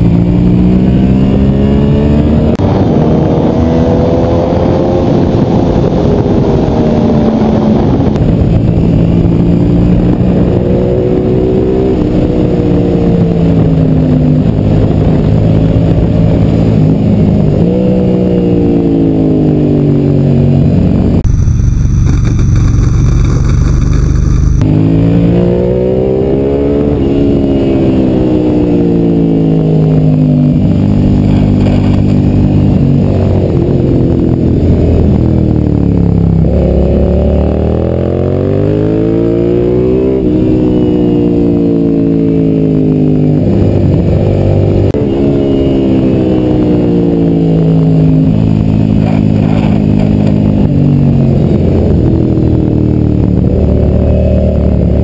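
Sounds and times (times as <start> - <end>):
motorcycle engine pulling through gears: 0.0 - 55.0.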